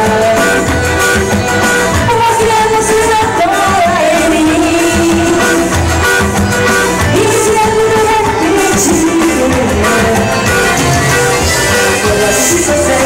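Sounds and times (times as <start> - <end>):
forro band playing: 0.0 - 13.0
person singing: 0.0 - 13.0.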